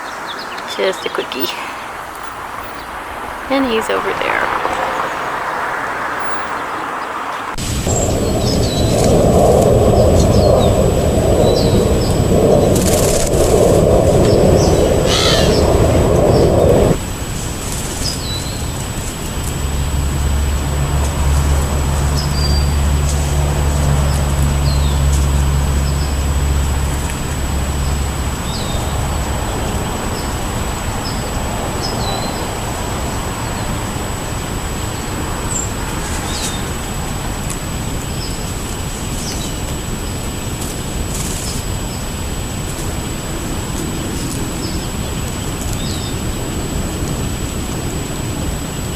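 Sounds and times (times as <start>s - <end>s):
small birds chirping: 0.0s - 9.1s, 11.4s - 17.0s, 17.8s - 19.6s, 20.5s - 34.0s, 34.8s - 37.0s, 43.8s - 46.7s
heavy vehicle rumble passing: 0.0s - 48.9s
street traffic: 0.0s - 48.9s.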